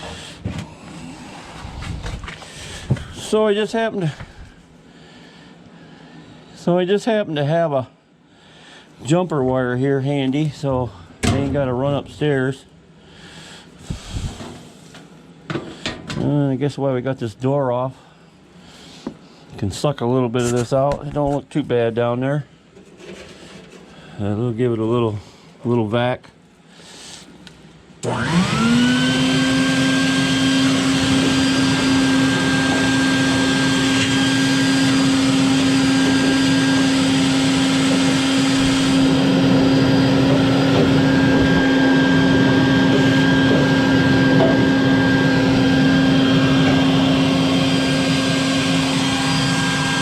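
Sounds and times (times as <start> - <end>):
vacuum cleaner motor whine: 28.0 - 50.0.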